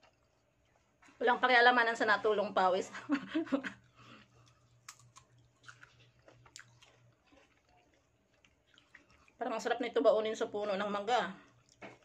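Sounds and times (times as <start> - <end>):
person chewing: 0.0 - 1.2, 3.7 - 9.4, 11.4 - 12.0.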